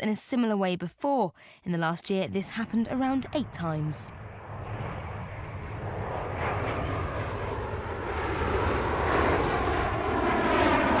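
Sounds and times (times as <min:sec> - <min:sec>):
military aircraft engine: 0:02.5 - 0:11.0.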